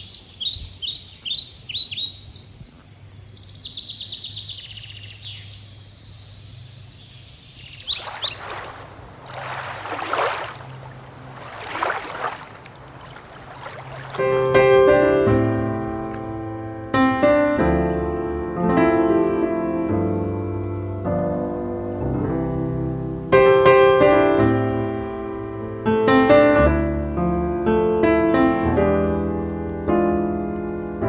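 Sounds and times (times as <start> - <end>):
birds chirping and trilling: 0.0 - 17.0.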